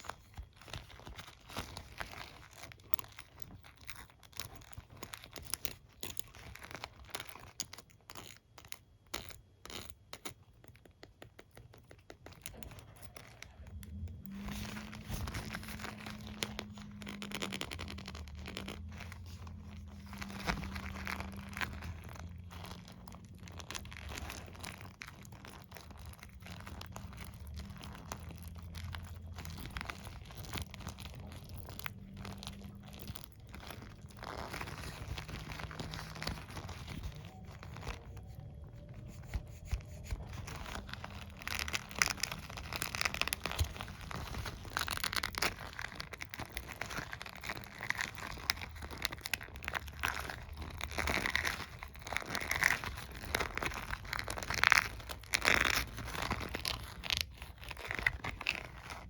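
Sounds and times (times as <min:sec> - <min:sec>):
comb and brush bristles scratching: 0:11.4 - 0:59.0
low steady hum: 0:12.2 - 0:59.0.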